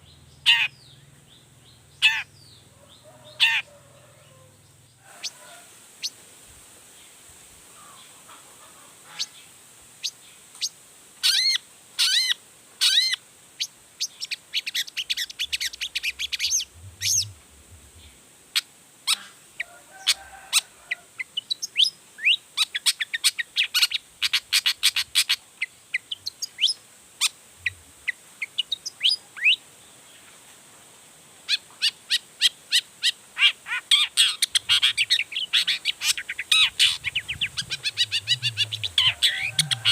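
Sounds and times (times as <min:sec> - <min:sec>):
bird singing high chirps: 0:14.2 - 0:17.4, 0:34.2 - 0:39.9.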